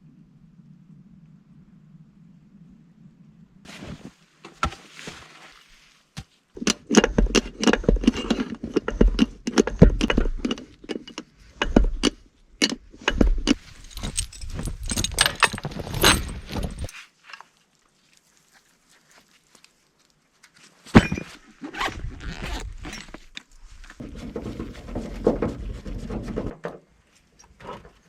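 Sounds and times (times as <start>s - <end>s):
metal chain links rattling: 13.4s - 16.9s.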